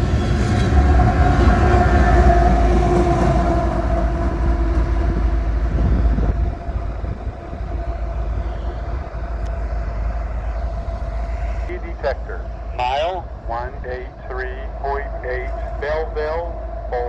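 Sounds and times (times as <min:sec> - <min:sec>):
freight cars rumbling on rails: 0:00.0 - 0:17.0.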